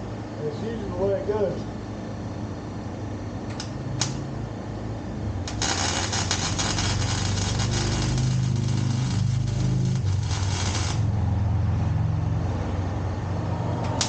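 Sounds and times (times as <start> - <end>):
low hum: 1.9 - 14.0
welding arc crackling: 5.2 - 12.0, 13.8 - 14.0.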